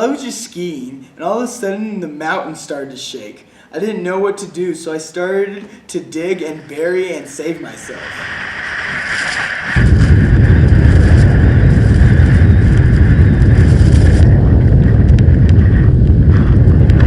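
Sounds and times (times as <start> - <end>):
rising hiss: 7.4 - 14.3
deep rumble: 8.2 - 17.0.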